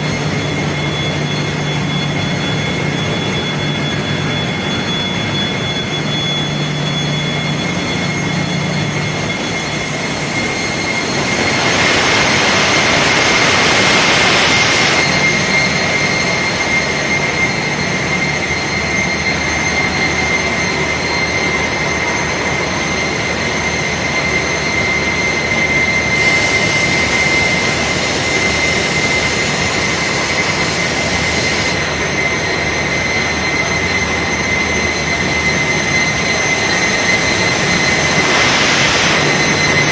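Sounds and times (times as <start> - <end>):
constant high whine: 0.0 - 39.9
engine-room machinery din: 0.0 - 39.9
hissing rush: 9.6 - 17.0, 26.0 - 32.0, 36.0 - 39.9.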